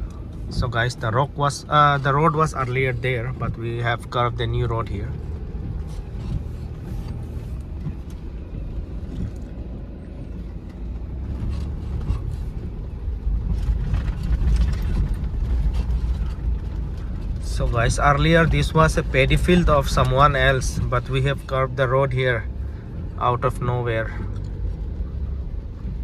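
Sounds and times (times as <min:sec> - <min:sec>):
vehicle rumbling on rough road: 0:00.0 - 0:26.0
knocks and rattles: 0:11.2 - 0:21.4.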